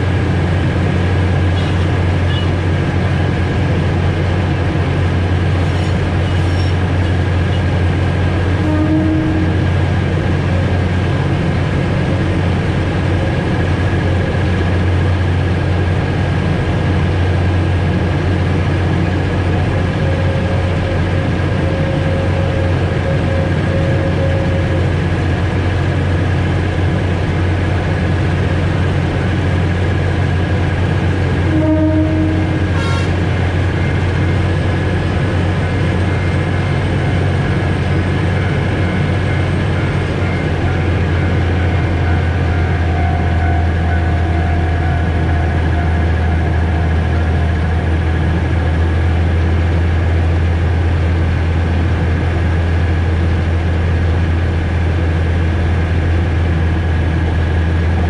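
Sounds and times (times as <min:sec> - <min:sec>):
train engine hum: 0:00.0 - 0:58.0
train horn toot: 0:01.6 - 0:02.6, 0:05.6 - 0:07.7, 0:08.5 - 0:09.9, 0:19.9 - 0:24.9, 0:31.4 - 0:34.0, 0:38.3 - 0:48.4.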